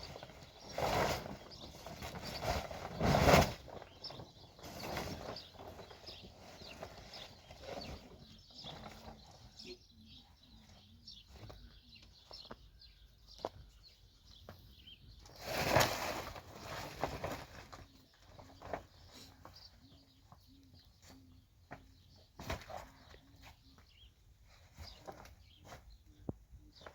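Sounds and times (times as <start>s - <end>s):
loud rustling: 0.0s - 9.6s, 15.3s - 19.7s.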